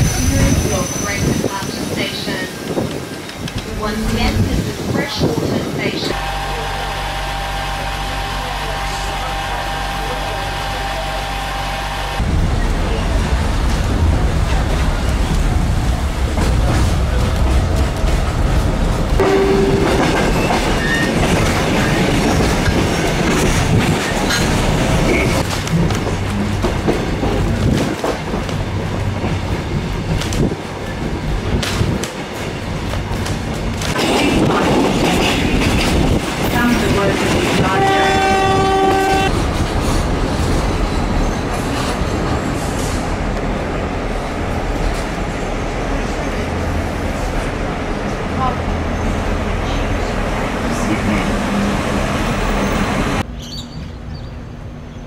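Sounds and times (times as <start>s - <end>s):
train rumbling on track: 0.0s - 55.0s
train horn: 6.1s - 12.2s, 19.2s - 20.5s, 37.6s - 39.3s.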